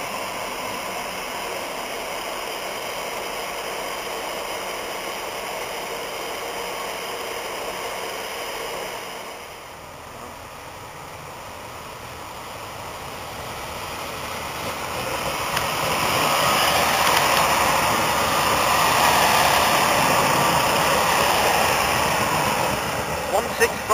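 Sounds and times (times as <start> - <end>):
train wheels on rail: 11.1 - 23.9.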